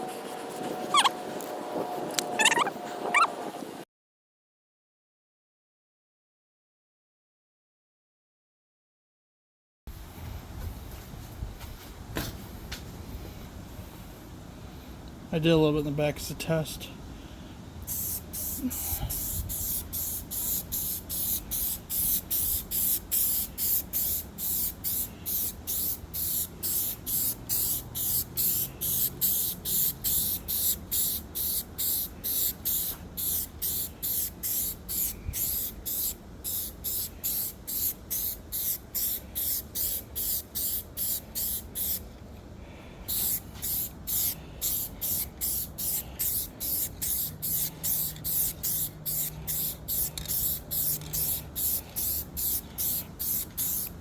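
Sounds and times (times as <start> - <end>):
spray paint can hissing: 17.8 - 42.1, 43.1 - 54.0.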